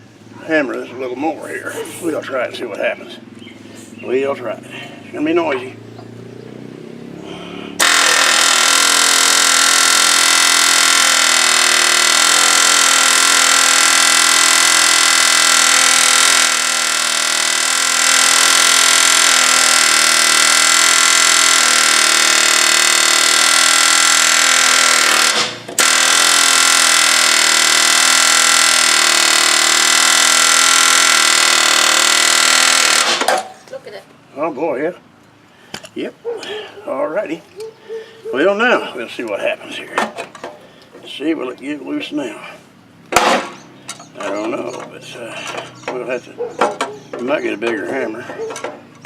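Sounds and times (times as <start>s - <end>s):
air chisel hammering on steel: 7.8s - 33.4s.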